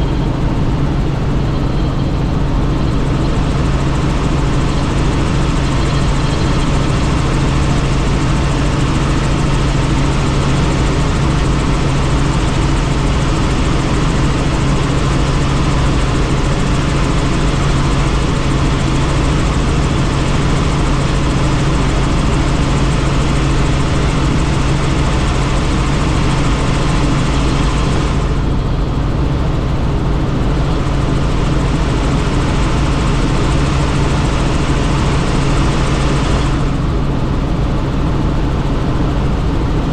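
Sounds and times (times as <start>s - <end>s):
helicopter rotor and engine noise: 0.0s - 39.9s.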